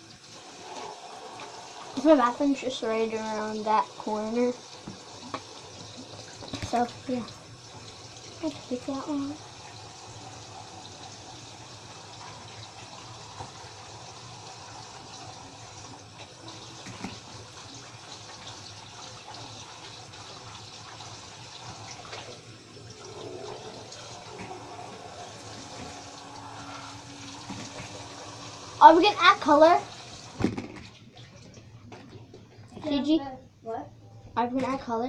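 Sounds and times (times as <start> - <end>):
tap water running into sink: 0.0 - 33.0.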